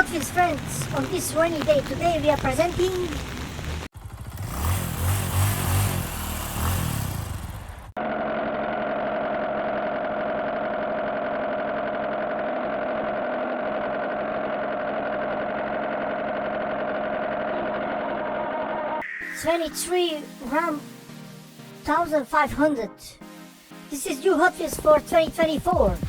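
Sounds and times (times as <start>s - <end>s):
vehicle engine running: 0.0s - 18.9s.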